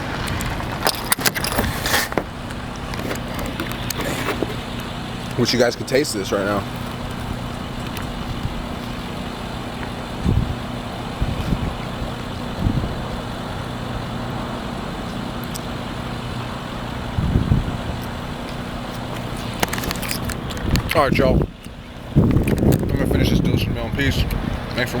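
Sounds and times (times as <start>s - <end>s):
low motor hum: 0.0s - 25.0s.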